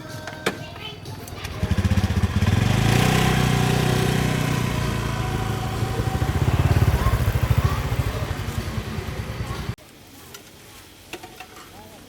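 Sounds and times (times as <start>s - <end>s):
small engine running: 1.5s - 9.8s.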